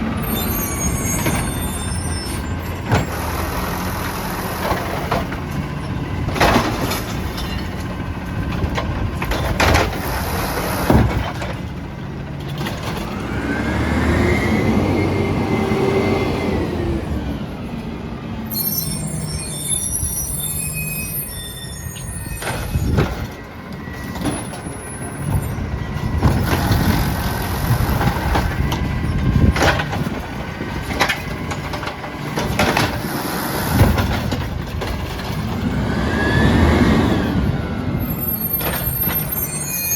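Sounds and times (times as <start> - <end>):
garbage truck engine revving: 0.0 - 20.4, 26.0 - 39.8.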